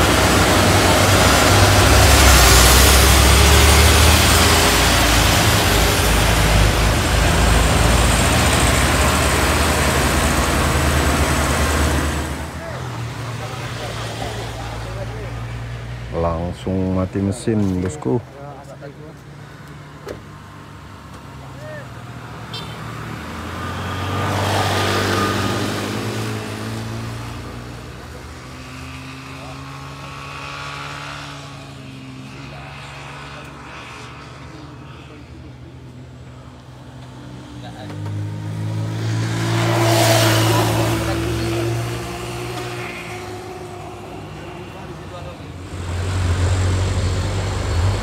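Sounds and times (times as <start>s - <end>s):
truck diesel engine labouring: 0.0s - 18.2s, 37.2s - 48.0s
road noise: 0.0s - 48.0s.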